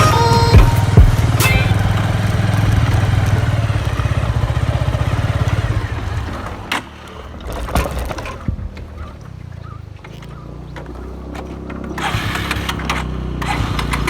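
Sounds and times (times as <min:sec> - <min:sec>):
background music: 0:00.0 - 0:03.5
motorcycle engine running: 0:00.0 - 0:14.0
thumps: 0:00.0 - 0:14.0.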